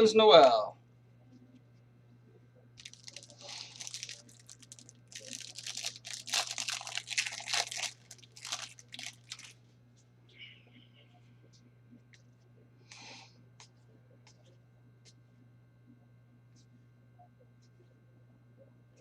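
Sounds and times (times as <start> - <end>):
foil wrapper tearing and crinkling: 2.8 - 9.6.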